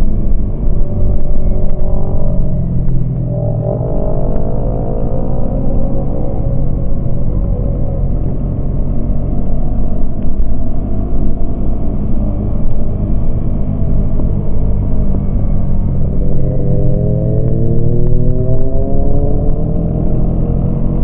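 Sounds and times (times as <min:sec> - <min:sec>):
wind rumble: 0:00.0 - 0:21.0.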